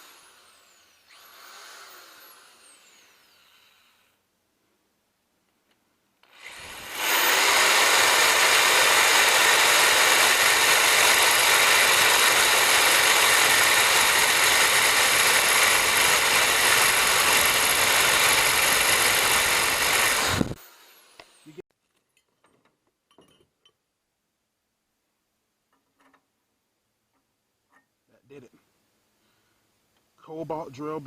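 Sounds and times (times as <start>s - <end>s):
power drill boring through steel: 0.0s - 4.1s, 6.2s - 21.6s.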